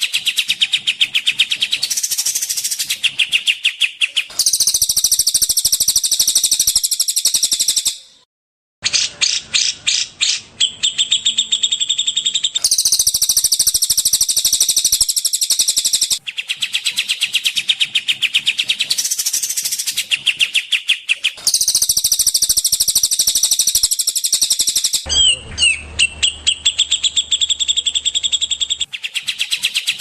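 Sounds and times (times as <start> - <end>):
songbird trills and chirps: 0.0 - 8.1, 8.9 - 30.0.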